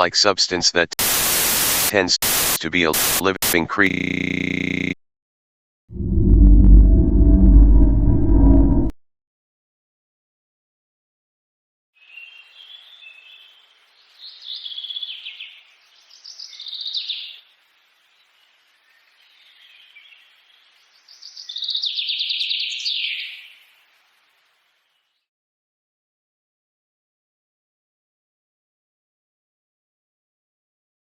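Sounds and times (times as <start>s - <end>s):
faint hiss: 1.0s - 3.6s, 12.0s - 25.2s
songbird chirping and trilling: 12.0s - 23.8s.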